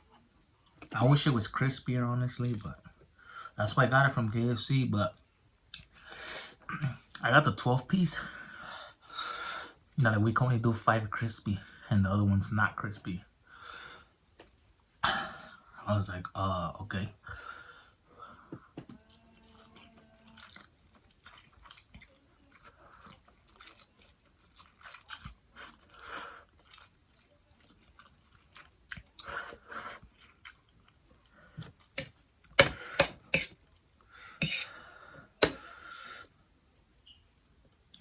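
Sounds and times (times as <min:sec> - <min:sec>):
man chewing and lip smacking: 0:18.9 - 0:32.6.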